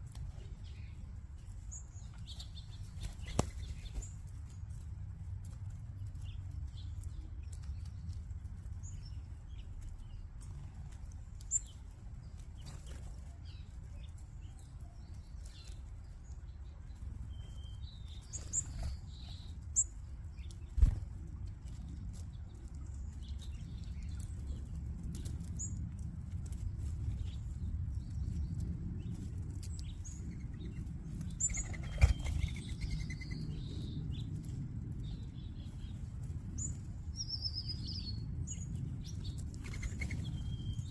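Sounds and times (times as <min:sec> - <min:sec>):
birds chirping and tweeting: 0:00.0 - 0:40.9
steady low rumble: 0:00.0 - 0:40.9
wings flapping: 0:02.8 - 0:04.3, 0:20.6 - 0:21.2, 0:31.4 - 0:33.0.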